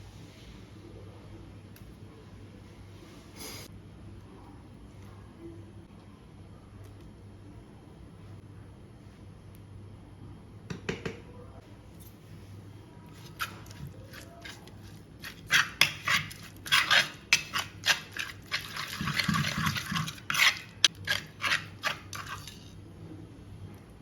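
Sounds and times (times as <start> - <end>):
utensils clinking on cookware: 13.2 - 22.7.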